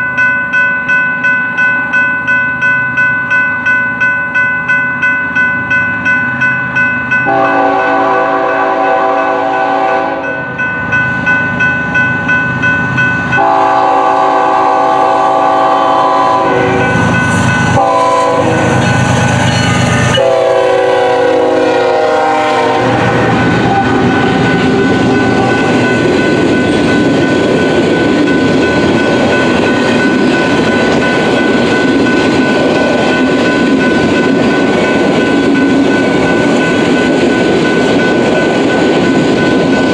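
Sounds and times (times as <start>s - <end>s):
crossing bell ringing rapidly: 0.0s - 39.9s
train wheels rumbling over rails: 7.1s - 39.9s
locomotive air horn blasts: 7.3s - 10.4s, 13.4s - 17.0s, 17.7s - 18.9s, 20.2s - 25.8s.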